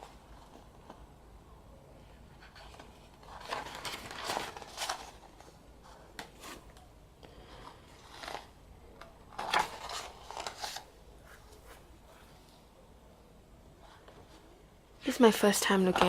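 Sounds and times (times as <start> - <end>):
paper and plastic rustling: 2.3 - 6.8, 7.4 - 12.5.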